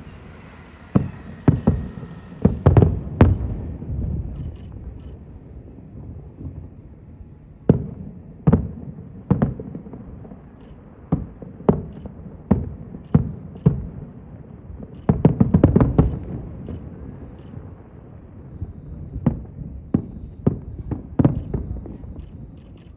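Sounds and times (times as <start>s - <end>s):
fireworks shells bursting: 0.0s - 3.6s, 14.8s - 17.9s, 20.0s - 22.9s.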